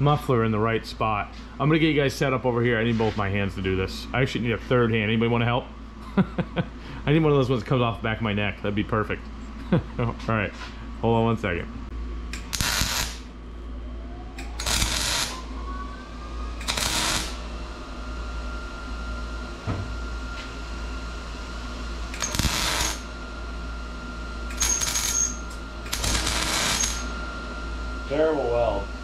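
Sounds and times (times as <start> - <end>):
steady low hum: 0.0 - 29.0
short welding bursts: 12.4 - 13.3, 14.5 - 15.4, 16.6 - 17.4, 22.2 - 23.1, 24.5 - 25.3, 25.9 - 27.1.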